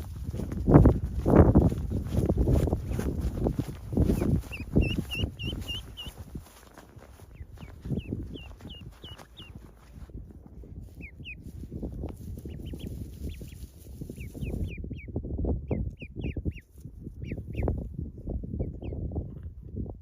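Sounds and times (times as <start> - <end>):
duckling peeping: 2.4 - 10.0, 10.9 - 11.6, 12.2 - 17.8, 18.5 - 19.0.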